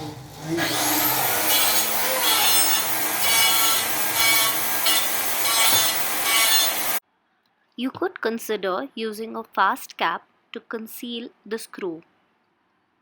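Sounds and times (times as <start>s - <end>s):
power screwdriver whining and grinding: 0.6s - 7.0s.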